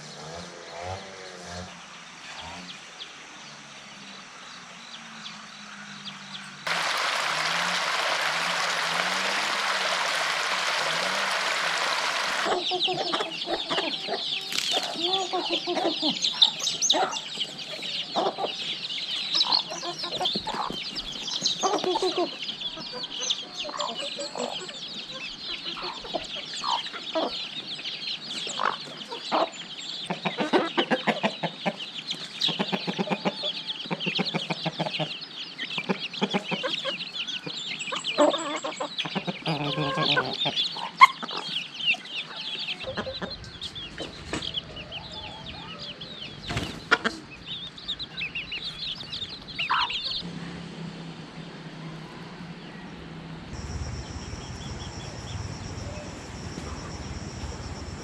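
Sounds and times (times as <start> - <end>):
chickens clucking: 6.7 - 50.3
dense high-pitched chirping: 53.5 - 58.0.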